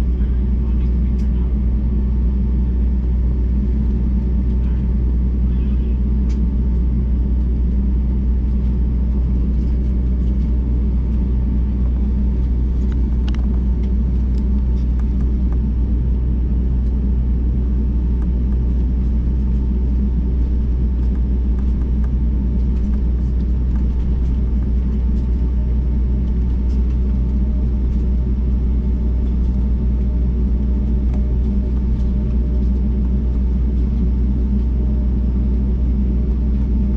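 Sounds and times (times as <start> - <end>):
jet engine drone in cabin: 0.0 - 36.9.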